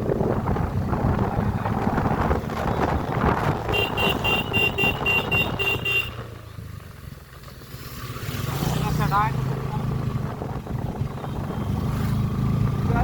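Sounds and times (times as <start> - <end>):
wind buffeting microphone: 0.0 - 5.9, 10.0 - 12.0
motorcycle riding: 0.0 - 13.0.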